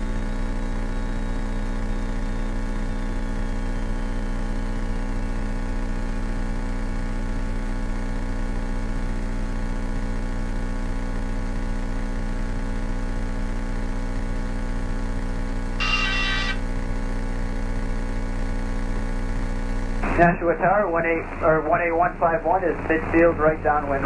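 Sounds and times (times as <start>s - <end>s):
aircraft engine drone: 15.8s - 16.6s, 20.0s - 24.0s.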